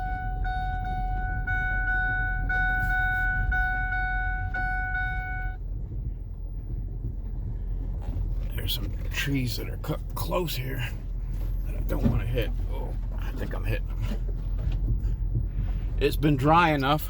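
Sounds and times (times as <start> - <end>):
electronic warning tone: 0.0 - 5.6
truck engine rumbling: 0.0 - 17.0.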